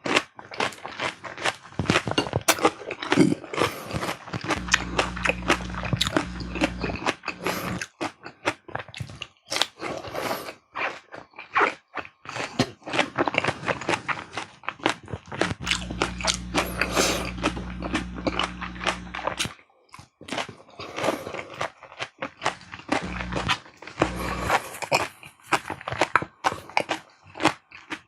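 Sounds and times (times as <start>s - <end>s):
chewing and crunching food: 0.0s - 28.0s
low steady hum: 4.5s - 7.8s, 15.6s - 19.5s, 22.6s - 24.8s.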